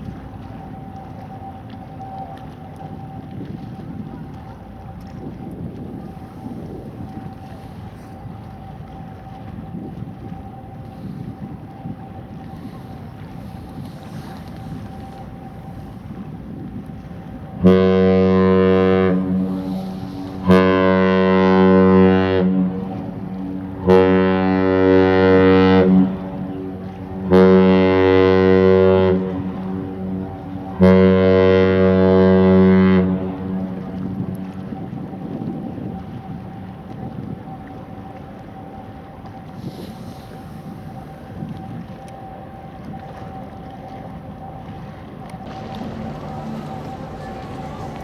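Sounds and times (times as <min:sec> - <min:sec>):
ship's horn blasts: 0:00.0 - 0:48.0
wind noise rumbling: 0:45.4 - 0:48.0.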